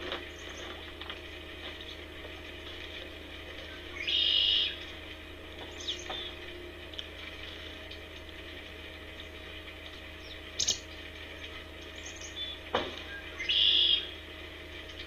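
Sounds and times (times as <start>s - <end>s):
steady low hum: 0.0s - 15.0s
harsh high bird call: 4.0s - 4.8s, 12.0s - 14.1s.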